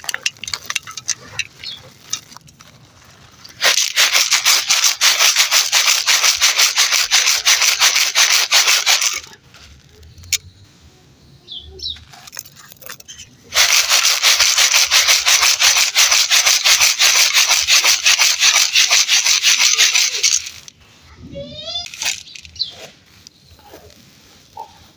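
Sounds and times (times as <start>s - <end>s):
dry dirt crumbling and scraping: 0.0s - 4.2s, 8.7s - 10.5s, 11.9s - 15.6s.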